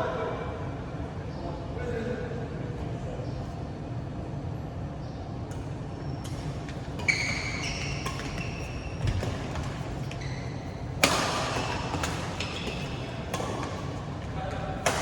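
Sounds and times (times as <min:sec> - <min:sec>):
low hum in hall: 0:00.0 - 0:15.0
racket hitting shuttlecock: 0:05.5 - 0:15.0
shoes squeaking on court floor: 0:05.5 - 0:15.0.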